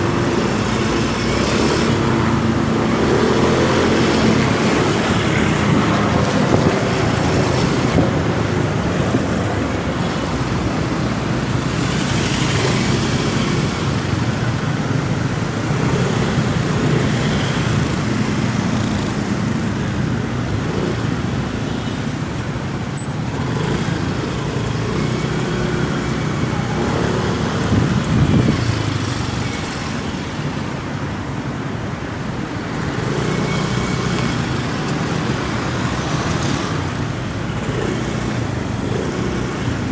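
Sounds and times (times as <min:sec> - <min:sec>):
surrounding traffic noise: 0:00.0 - 0:39.9
motorcycle engine running: 0:15.2 - 0:26.6.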